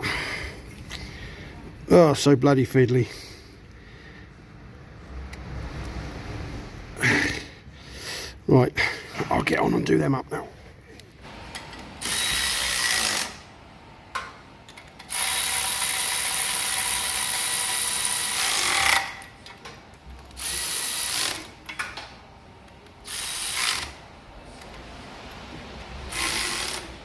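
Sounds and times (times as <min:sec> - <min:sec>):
electric ratchet spinning nuts: 0:11.6 - 0:13.5, 0:14.8 - 0:19.3, 0:20.3 - 0:21.6, 0:23.0 - 0:24.0, 0:26.0 - 0:27.0.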